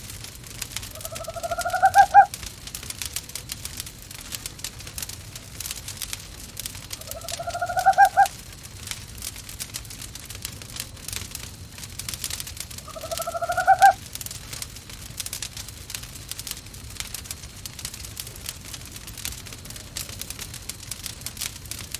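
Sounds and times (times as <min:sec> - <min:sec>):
wood fire crackling and popping: 0:00.0 - 0:21.9
owl hooting: 0:00.9 - 0:02.4, 0:07.0 - 0:08.4, 0:12.8 - 0:14.0.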